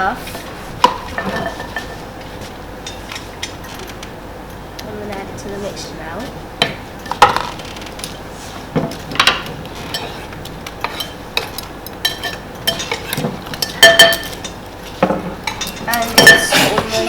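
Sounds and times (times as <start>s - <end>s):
utensil scraping a mixing bowl: 7.1s - 17.0s.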